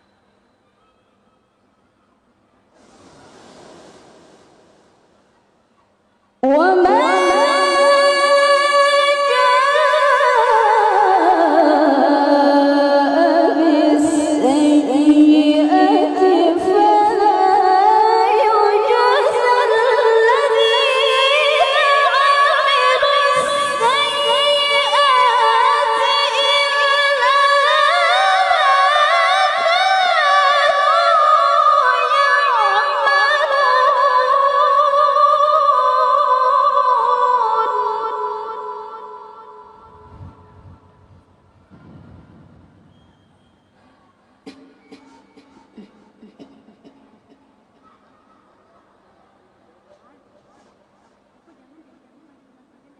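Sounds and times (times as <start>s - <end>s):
woman chanting melodically: 6.4s - 40.9s.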